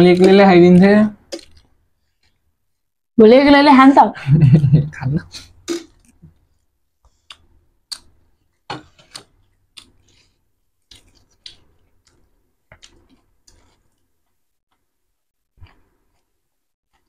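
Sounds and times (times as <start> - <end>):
crunching and chewing snack: 9.0 - 14.9, 15.6 - 17.0.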